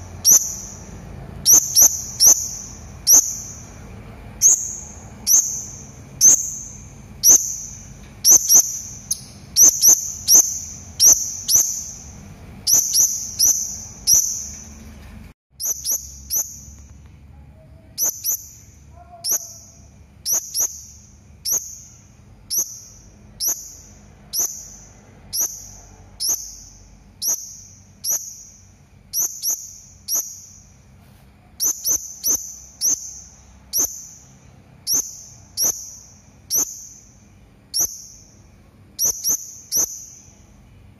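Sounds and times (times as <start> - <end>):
faint low hum: 0.0 - 40.9
parrot high-pitched shrieks: 18.0 - 20.7.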